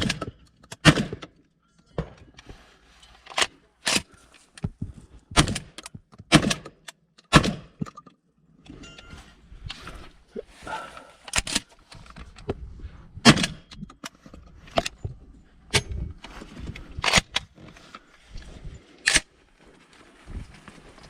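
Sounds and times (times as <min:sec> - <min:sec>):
gunshots: 0:00.8 - 0:01.3.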